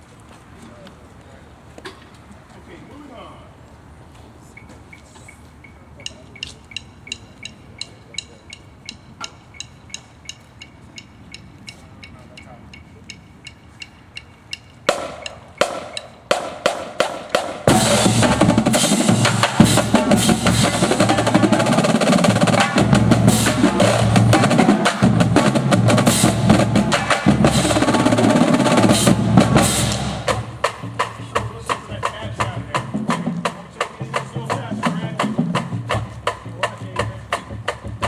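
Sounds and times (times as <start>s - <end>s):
drum and bugle corps: 8.9s - 38.0s
sharp drum hits: 14.9s - 36.7s.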